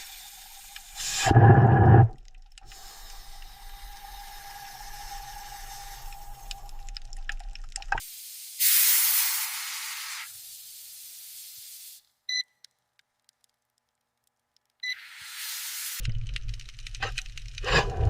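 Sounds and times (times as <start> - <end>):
loud hiss: 0.0 - 6.8, 8.0 - 12.0
low rumble: 1.0 - 2.4, 16.0 - 18.0.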